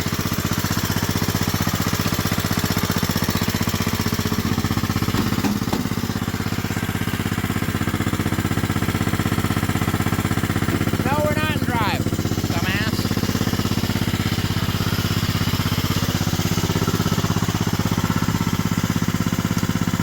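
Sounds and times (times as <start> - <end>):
lawn mower engine running: 0.0 - 20.0
short knocks: 5.1 - 6.0.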